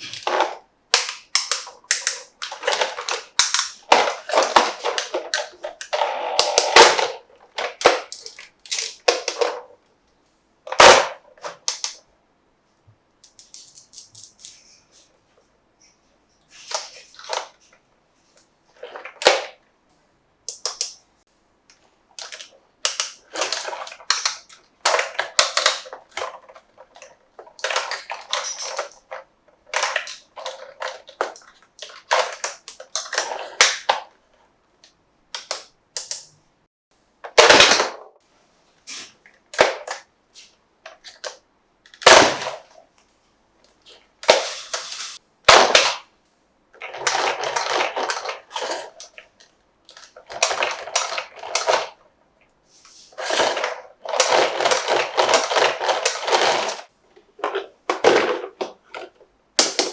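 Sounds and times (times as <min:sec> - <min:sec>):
plastic clicks: 0:00.0 - 0:09.7, 0:10.7 - 0:12.0, 0:20.5 - 0:21.0, 0:21.7 - 0:34.1, 0:34.8 - 0:36.4
plastic packaging crinkling: 0:46.8 - 0:52.0, 0:53.1 - 0:59.9.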